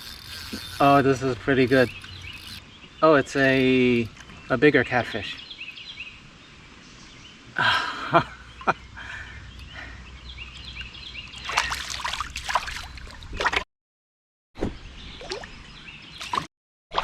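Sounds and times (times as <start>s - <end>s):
birds chirping: 0.0s - 12.3s
water splashing: 11.4s - 13.6s.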